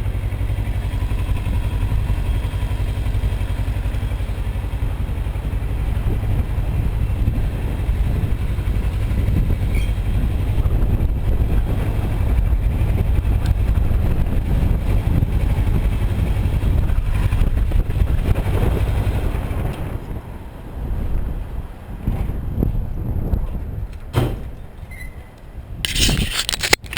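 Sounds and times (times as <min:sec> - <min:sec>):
motorcycle engine running: 0:00.0 - 0:20.2
wind buffeting microphone: 0:00.0 - 0:26.9.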